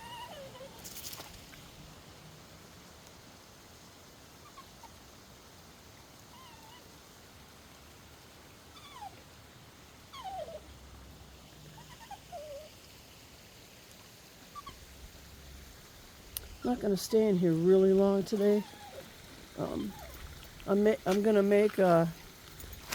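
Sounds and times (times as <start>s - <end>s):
dog whining: 0.0s - 0.9s, 8.8s - 9.2s, 10.1s - 10.7s, 11.7s - 12.8s, 14.6s - 14.8s, 18.4s - 20.3s.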